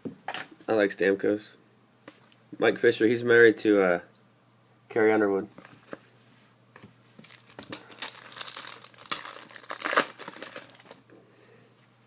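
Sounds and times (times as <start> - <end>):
wrapper crinkling and tearing: 7.2 - 11.0.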